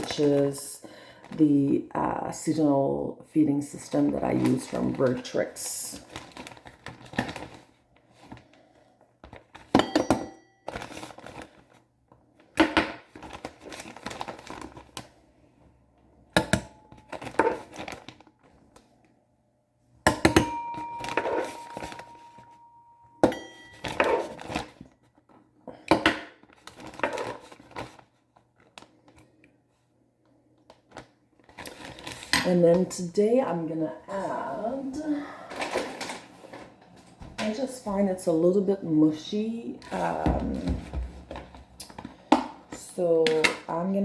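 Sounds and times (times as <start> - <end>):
plastic bag crinkling: 3.8 - 9.7, 10.6 - 11.8, 12.4 - 15.2, 16.9 - 18.9, 30.8 - 32.4
small dishes clattering: 23.2 - 24.8.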